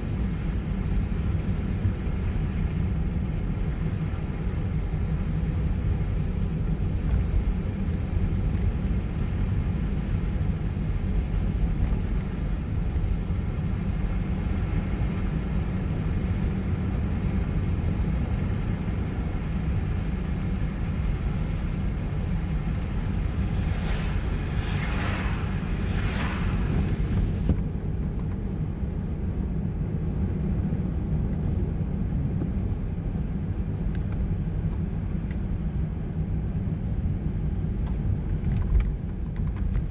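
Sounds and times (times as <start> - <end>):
car road and engine rumble: 0.0 - 39.9
short swishes: 23.2 - 27.5.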